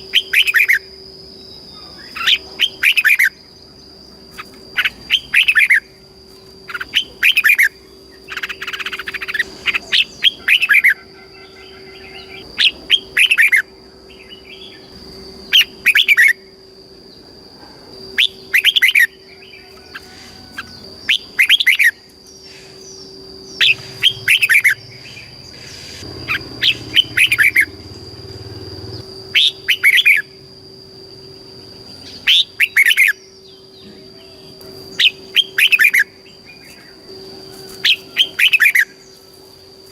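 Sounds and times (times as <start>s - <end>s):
low hum: 21.9s - 39.8s.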